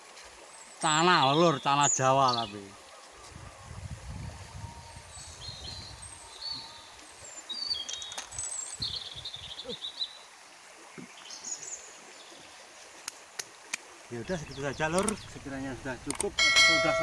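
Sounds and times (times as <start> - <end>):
steady outdoor hiss: 0.0 - 17.0
small birds chirping: 4.8 - 10.3, 14.1 - 16.3.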